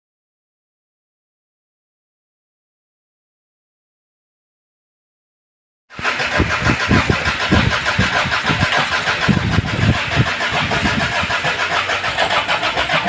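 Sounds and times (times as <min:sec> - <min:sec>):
engine cranking by starter: 0:05.9 - 0:13.0.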